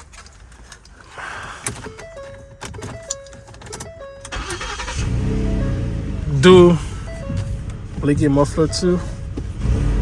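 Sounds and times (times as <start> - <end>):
car warning chimes: 1.8 - 9.6
car engine starting: 2.7 - 10.0
deep loud exhaust note: 5.0 - 8.2.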